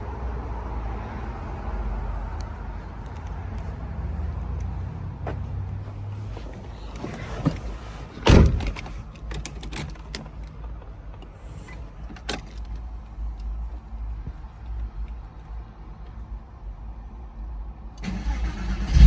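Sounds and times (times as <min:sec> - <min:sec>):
car door shutting thud: 0:06.3 - 0:09.0.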